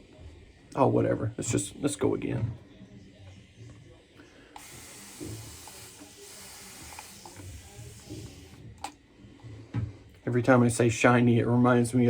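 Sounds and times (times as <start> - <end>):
water running from a tap: 4.6 - 8.6.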